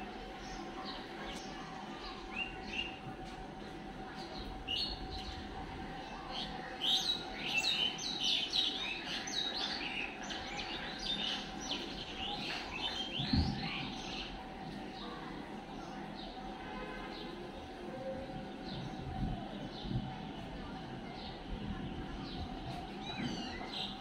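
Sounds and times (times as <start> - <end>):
birds chirping: 6.1 - 15.1.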